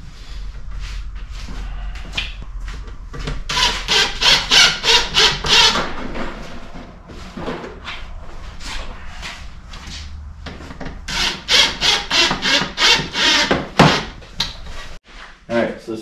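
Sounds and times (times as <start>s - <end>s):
hand saw cutting wood: 3.5s - 5.8s, 11.1s - 14.2s.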